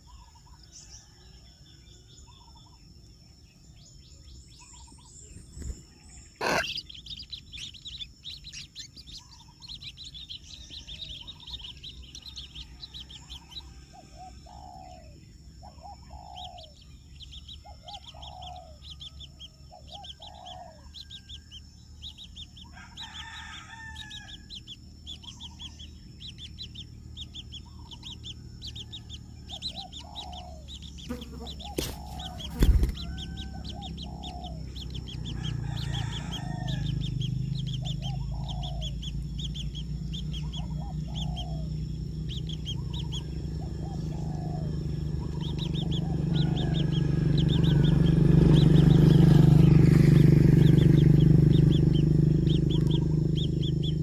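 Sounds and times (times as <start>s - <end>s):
birds chirping: 0.0s - 54.0s
insect drone: 0.0s - 54.0s
lower falling bird calls: 0.0s - 54.0s.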